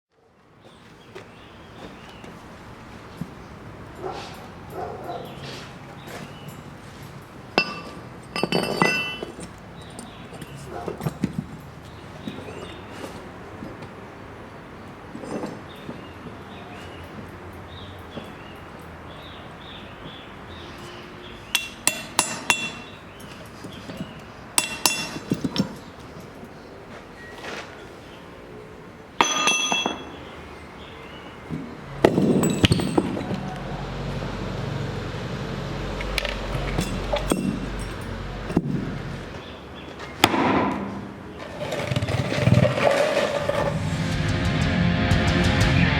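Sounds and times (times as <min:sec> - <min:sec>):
hammer ringing on steel anvil: 0:21.5 - 0:23.0, 0:24.6 - 0:25.3, 0:29.2 - 0:30.3.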